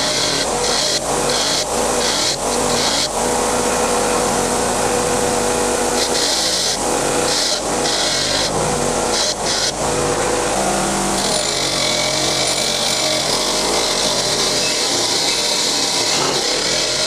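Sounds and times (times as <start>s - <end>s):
power tool motor running: 0.0s - 17.0s.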